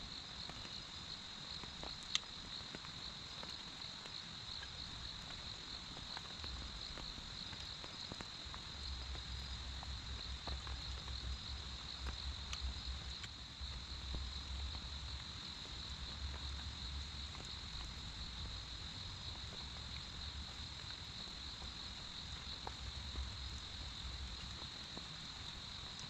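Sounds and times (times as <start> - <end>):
steady rain falling: 0.0 - 26.0
drip ticks: 1.6 - 18.7, 19.3 - 26.0.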